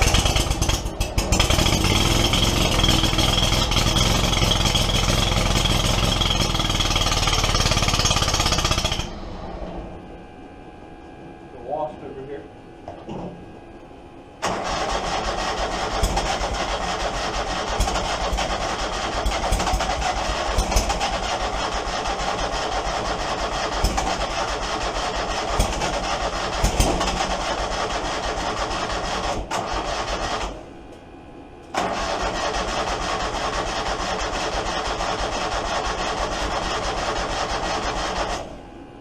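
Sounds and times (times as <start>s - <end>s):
mower engine running unevenly: 0.0s - 9.1s.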